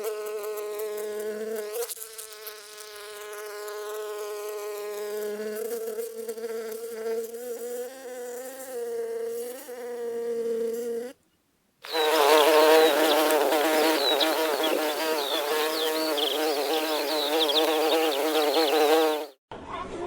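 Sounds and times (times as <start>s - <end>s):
insects buzzing: 11.8s - 19.4s.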